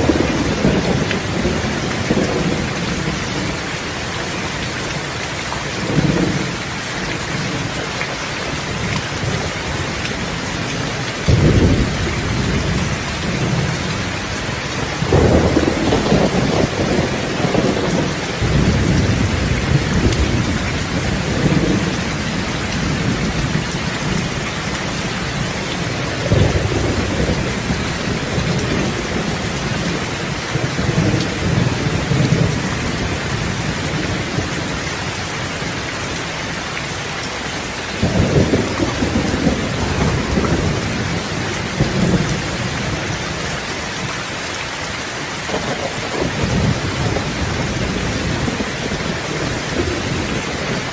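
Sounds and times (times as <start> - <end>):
rolling thunder: 0.0 - 3.7, 8.8 - 34.8, 38.0 - 43.3, 45.5 - 50.9
heavy rain: 0.0 - 50.9
sharp thunder cracks: 11.3 - 12.8.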